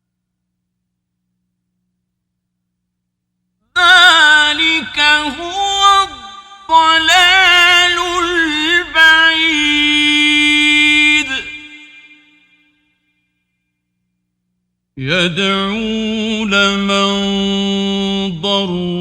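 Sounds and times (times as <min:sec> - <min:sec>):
man chanting melodically: 0:03.8 - 0:12.1, 0:15.0 - 0:19.0.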